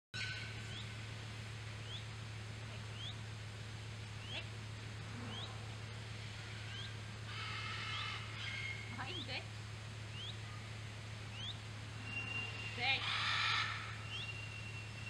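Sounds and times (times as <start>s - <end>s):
bird chirping high rising calls: 0.2s - 1.0s, 1.8s - 2.1s, 2.8s - 3.2s, 4.2s - 9.3s, 10.1s - 15.0s
steady low hum: 0.2s - 15.0s.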